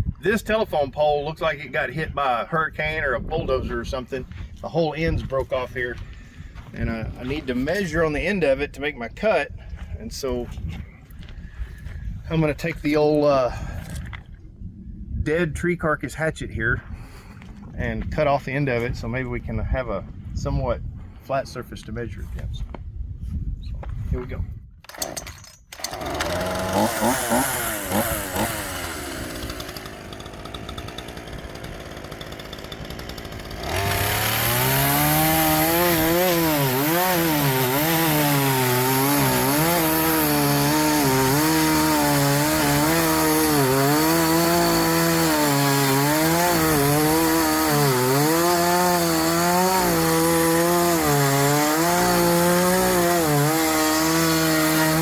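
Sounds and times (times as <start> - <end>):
gas-engine saw cutting wood: 24.9 - 55.0.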